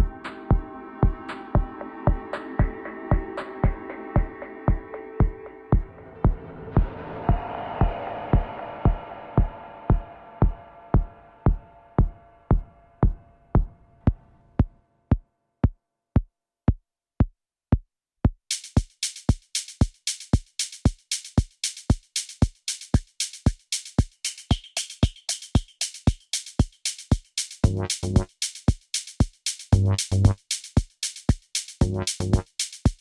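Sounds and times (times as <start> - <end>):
held synth chord: 0.0 - 13.9
kick drum: 0.0 - 18.5
hi-hat: 18.5 - 33.0.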